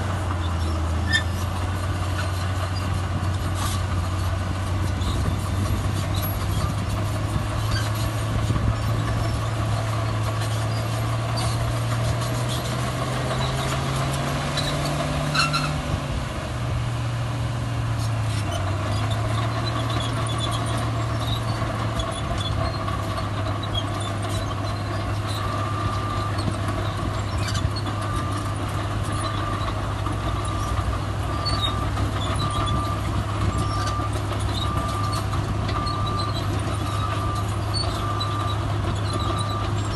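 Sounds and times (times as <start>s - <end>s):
diesel machinery engine running: 0.0s - 39.9s
reversing alarm beeping: 31.3s - 39.8s.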